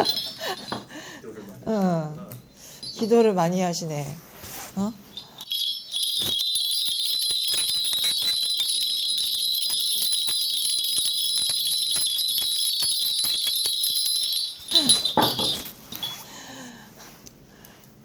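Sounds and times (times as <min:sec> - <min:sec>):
bells jingling: 0:00.0 - 0:01.2, 0:02.5 - 0:03.6, 0:05.0 - 0:16.6.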